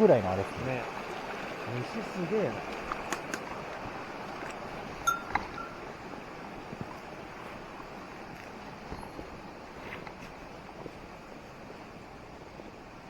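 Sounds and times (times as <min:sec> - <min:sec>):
stream water rushing: 0:00.0 - 0:13.0
brief ringing tone: 0:05.1 - 0:05.8.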